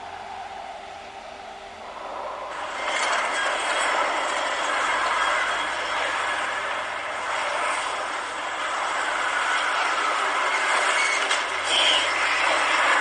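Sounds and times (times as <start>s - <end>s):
roar of strong wind: 0.0s - 2.8s.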